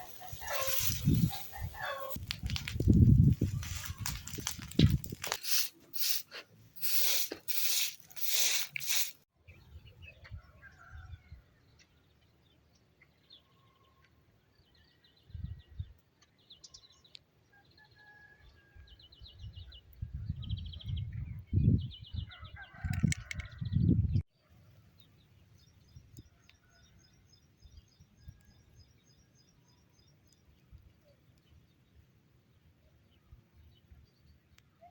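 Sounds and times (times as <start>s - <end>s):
loud rustling noise: 0.0s - 9.2s.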